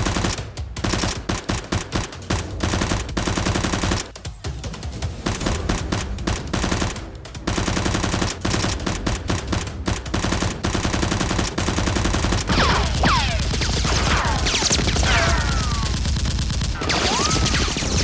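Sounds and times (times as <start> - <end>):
automatic gunfire: 0.0 - 4.1, 5.3 - 18.0.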